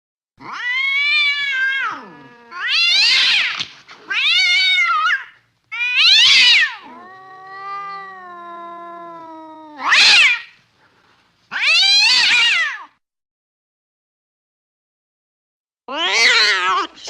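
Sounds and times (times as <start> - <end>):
cat low drawn-out moan: 0.4 - 2.9, 6.7 - 10.0
cat yowling: 0.4 - 10.6, 11.5 - 12.9, 15.9 - 17.0.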